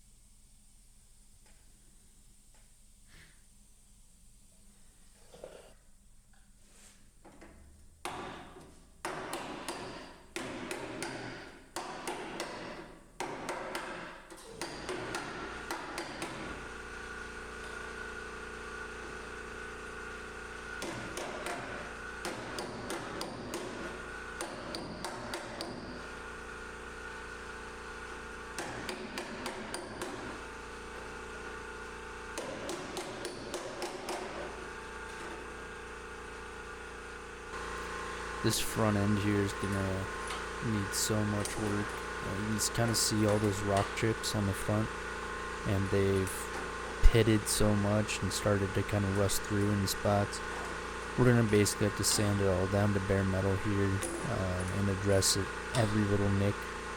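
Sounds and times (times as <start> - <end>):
machine hum: 14.4 - 56.9.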